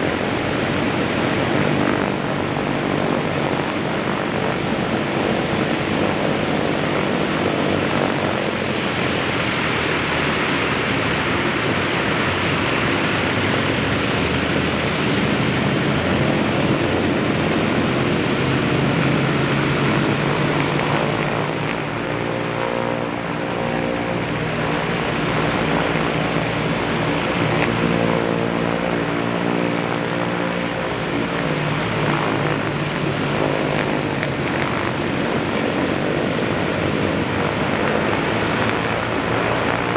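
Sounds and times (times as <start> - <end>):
propeller aircraft engines droning: 0.0 - 39.9.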